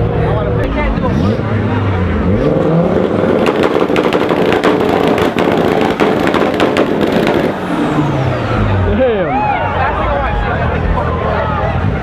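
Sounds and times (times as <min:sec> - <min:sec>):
car engine on rev limiter: 0:00.2 - 0:12.0
exhaust crackling and popping: 0:02.2 - 0:08.1.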